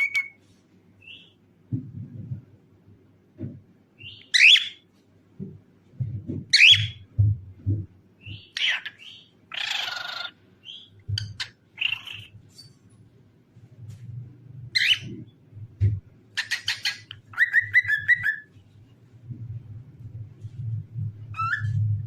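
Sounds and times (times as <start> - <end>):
cockatiel chirping and whistling: 0.0 - 0.4, 4.0 - 4.8, 6.6 - 7.0, 16.4 - 18.5, 21.3 - 21.9.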